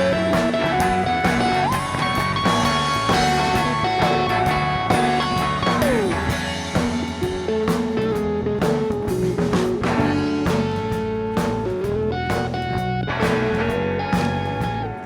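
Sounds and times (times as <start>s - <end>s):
lead guitar bending notes: 0.0s - 9.0s
bass guitar: 0.0s - 15.0s
steady drums: 0.0s - 15.0s.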